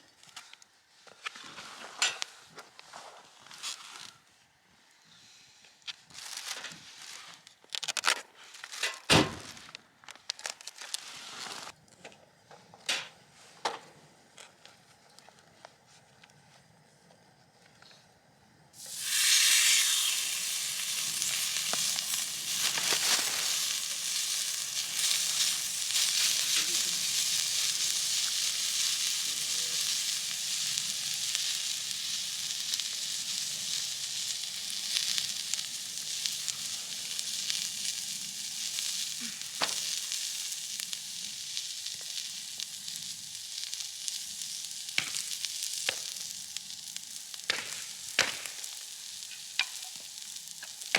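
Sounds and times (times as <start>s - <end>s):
small pops of frying: 18.8s - 50.9s
steak sizzling in a pan: 18.8s - 50.9s.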